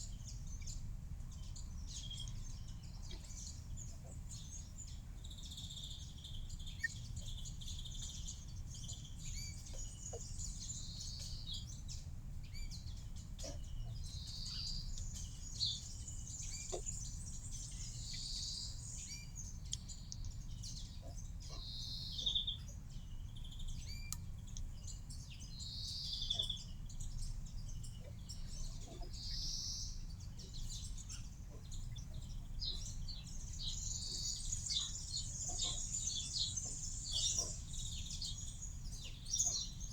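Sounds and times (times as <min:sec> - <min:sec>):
small birds chirping: 0:00.0 - 0:39.9
light ticks: 0:19.6 - 0:20.4, 0:24.1 - 0:24.7.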